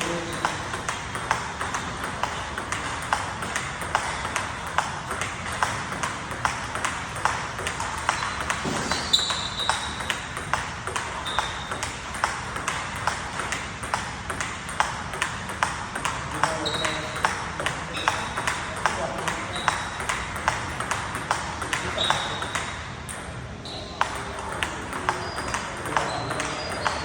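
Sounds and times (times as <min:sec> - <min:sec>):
table tennis ball clicks: 0:00.0 - 0:23.4, 0:24.0 - 0:27.0
brief high squeaks: 0:23.6 - 0:24.0.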